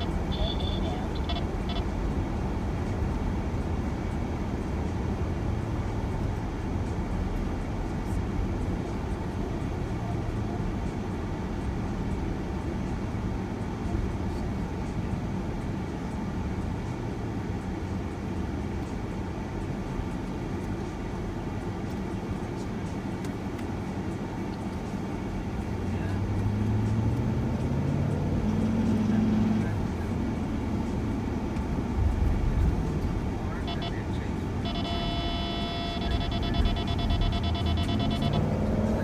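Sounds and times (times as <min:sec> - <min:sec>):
van road and engine rumble: 0:00.0 - 0:39.0
faint steady hum: 0:31.6 - 0:39.0.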